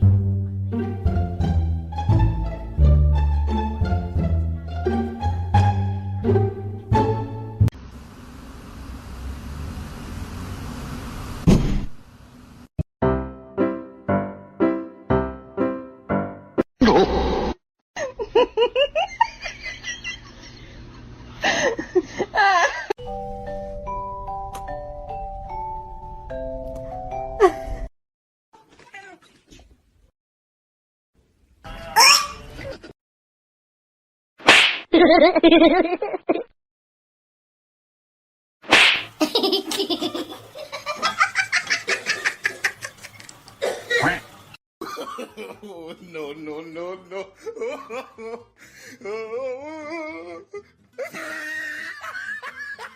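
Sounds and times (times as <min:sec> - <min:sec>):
person giggling: 0:16.8 - 0:17.2, 0:21.4 - 0:22.9, 0:27.4 - 0:27.9, 0:35.0 - 0:36.5, 0:44.8 - 0:52.9
person laughing: 0:16.8 - 0:17.3, 0:18.0 - 0:23.0, 0:27.4 - 0:27.9, 0:35.0 - 0:36.5, 0:39.2 - 0:52.9
music with chiming mallet notes: 0:23.0 - 0:27.5.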